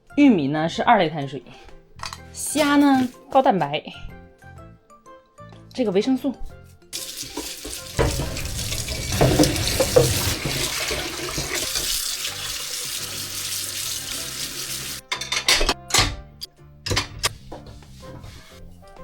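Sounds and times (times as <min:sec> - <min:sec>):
tap water running into sink: 0:07.0 - 0:15.0.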